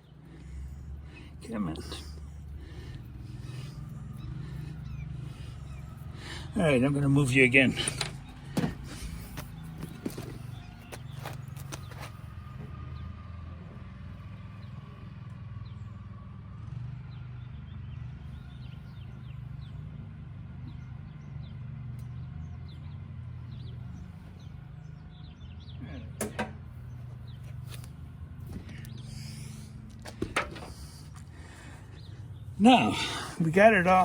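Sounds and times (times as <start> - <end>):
faint bird chirps: 0.0 - 6.5.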